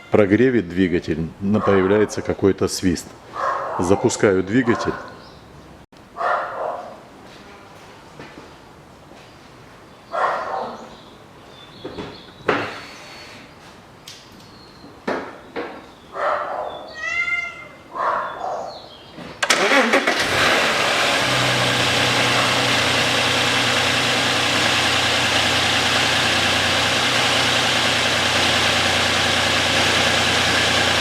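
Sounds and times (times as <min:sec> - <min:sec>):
car engine cranking and idling: 0:19.4 - 0:31.0.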